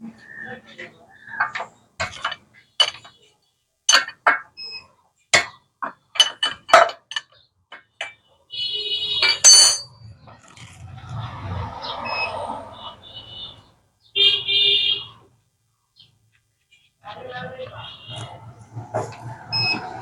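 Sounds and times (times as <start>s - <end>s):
metal tools clinking on engine: 1.5s - 3.1s, 3.9s - 4.6s, 5.4s - 8.2s, 9.2s - 9.9s
ringing metal scrape: 9.2s - 10.0s.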